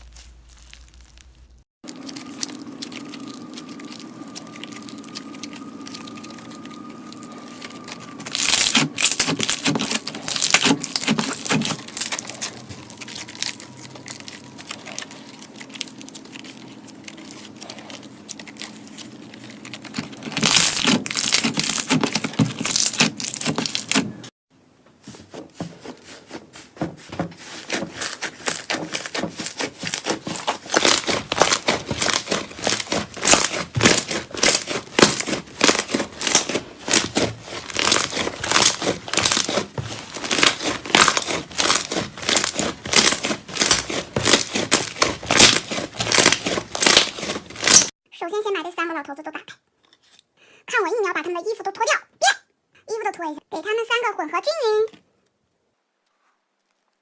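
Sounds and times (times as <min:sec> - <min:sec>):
brittle crackling and crunching: 0:00.0 - 0:24.3, 0:27.0 - 0:48.0.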